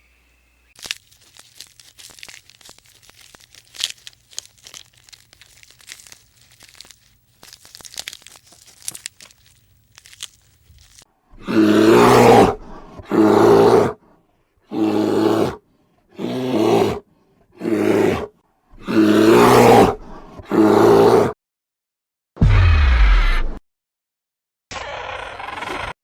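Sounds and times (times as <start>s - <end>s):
animal calling roughly: 14.7s - 15.6s, 17.6s - 21.3s.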